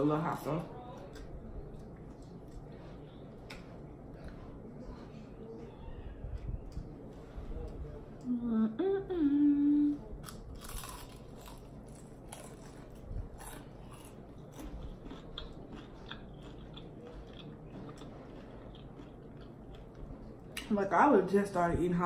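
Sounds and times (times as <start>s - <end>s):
crunching and chewing: 0.8s - 5.0s, 10.2s - 20.7s
person humming: 8.2s - 10.1s.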